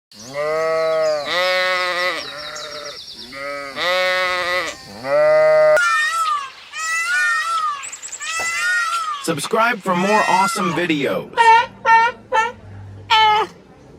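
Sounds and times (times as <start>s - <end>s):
farm animal bleating: 0.2s - 9.3s, 9.9s - 13.6s
higher-pitched wavering calls: 5.8s - 9.3s, 10.0s - 13.6s.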